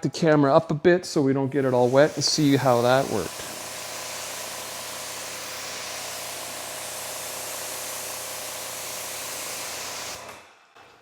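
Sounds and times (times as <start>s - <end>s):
water spraying on car paint: 1.6s - 10.2s.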